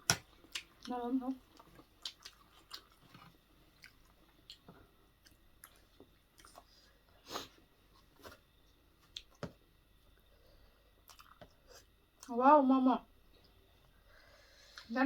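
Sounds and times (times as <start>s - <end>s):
chewing with wet smacks: 0.0s - 6.8s, 11.0s - 11.6s.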